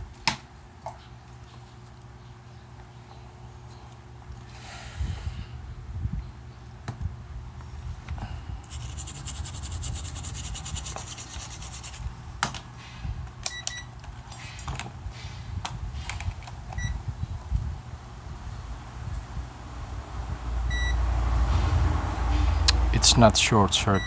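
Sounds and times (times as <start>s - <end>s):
steady low hum: 0.0s - 24.0s
fast high-pitched ticking: 8.7s - 12.0s
short electronic beeps: 20.7s - 21.0s.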